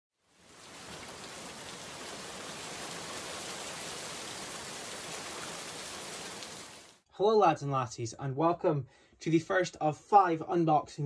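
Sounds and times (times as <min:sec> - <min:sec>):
rain patter: 0:00.2 - 0:07.0.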